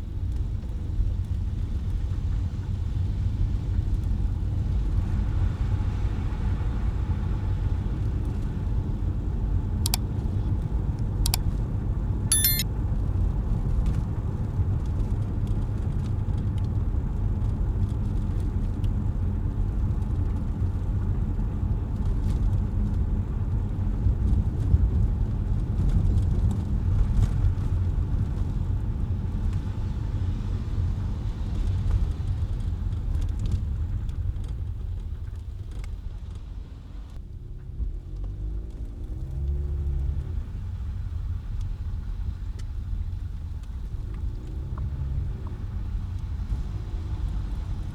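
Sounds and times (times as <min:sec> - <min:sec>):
car tyres on wet road: 0:00.0 - 0:12.2, 0:13.1 - 0:47.9
sharp clicks: 0:12.3 - 0:12.6.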